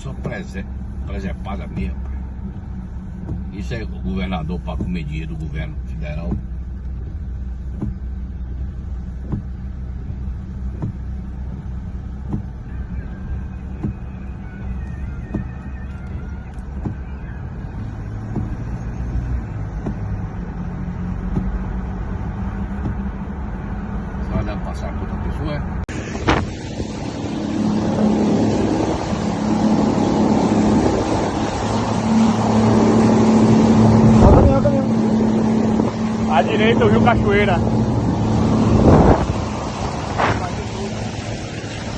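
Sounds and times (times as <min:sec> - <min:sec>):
engine low rumble: 0:00.0 - 0:41.9
jet ski engine running: 0:25.9 - 0:41.9.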